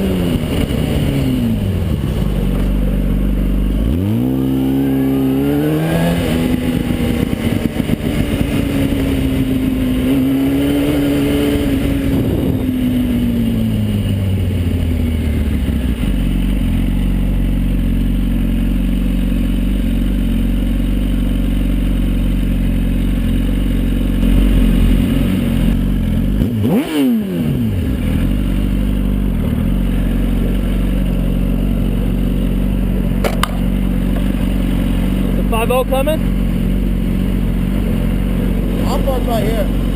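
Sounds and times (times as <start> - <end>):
car engine rumbling: 0.0 - 39.9.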